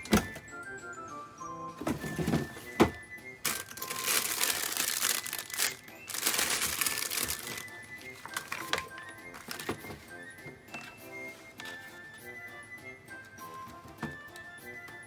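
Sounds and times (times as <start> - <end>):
background music: 0.0 - 15.0
plastic crinkling and rustling: 1.9 - 10.1.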